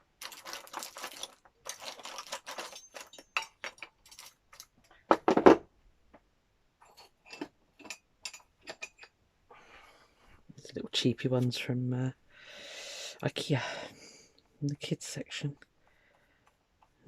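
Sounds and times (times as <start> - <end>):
small hard items clinking: 0.0 - 5.0
rustling: 0.1 - 4.9.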